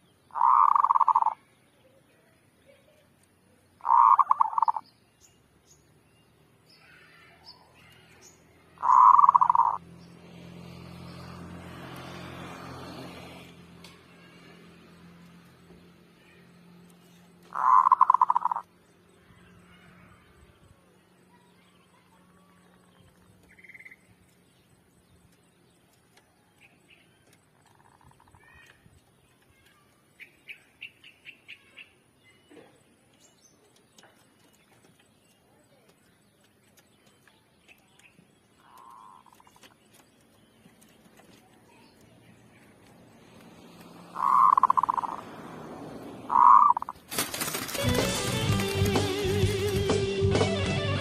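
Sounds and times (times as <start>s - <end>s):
dove cooing trill: 0.3s - 1.4s, 3.8s - 4.8s, 8.8s - 9.8s, 17.5s - 18.6s, 44.0s - 45.4s, 46.2s - 47.0s
low engine-like hum: 7.2s - 29.8s, 32.5s - 50.1s.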